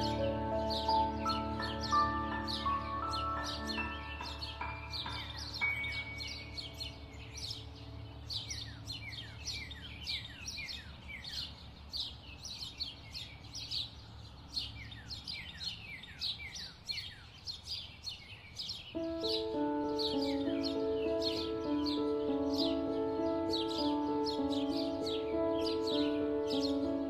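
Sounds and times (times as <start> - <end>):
instrumental music: 0.0 - 9.0, 19.0 - 27.0
birds chirping: 0.0 - 27.0.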